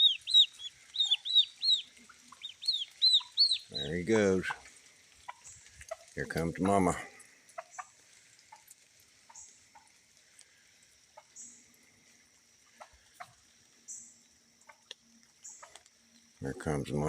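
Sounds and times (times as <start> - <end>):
faint high chirp: 0.0 - 3.8.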